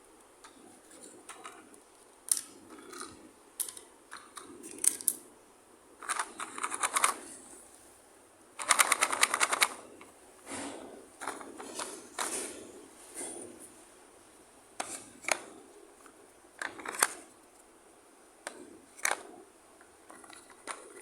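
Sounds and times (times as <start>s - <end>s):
plastic toy pieces clicking: 2.3s - 5.2s, 6.0s - 7.2s, 8.6s - 9.8s, 16.6s - 17.2s, 18.5s - 19.2s, 20.1s - 21.0s
fast rattling clicks: 6.0s - 7.2s, 8.6s - 9.8s.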